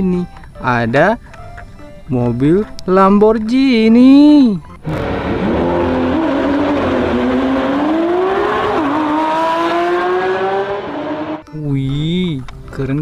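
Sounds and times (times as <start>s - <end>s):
sports car engine revving: 4.8s - 11.4s
tyre and road noise: 4.8s - 11.4s.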